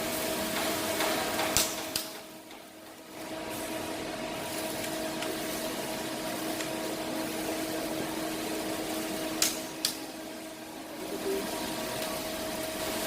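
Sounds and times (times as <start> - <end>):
machine hiss and hum: 0.0 - 13.0.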